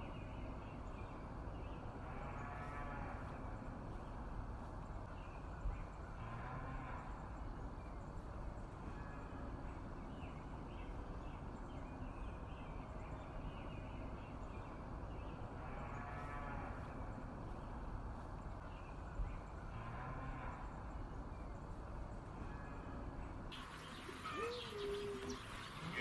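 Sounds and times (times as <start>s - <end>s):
background hiss: 23.5s - 26.0s.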